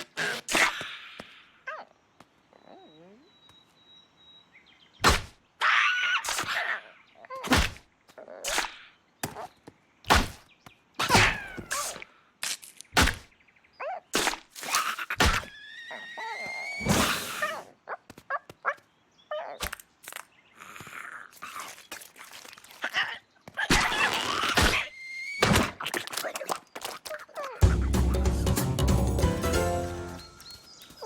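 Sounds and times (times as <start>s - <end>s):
cartoon thuds and whacks: 5.0s - 5.4s, 7.4s - 7.8s, 10.1s - 10.4s, 13.0s - 13.3s, 15.2s - 15.5s, 25.4s - 25.8s.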